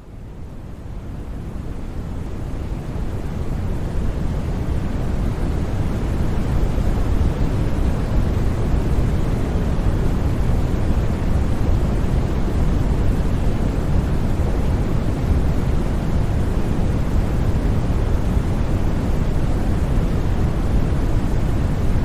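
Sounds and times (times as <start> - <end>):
deep white noise: 0.0 - 22.0.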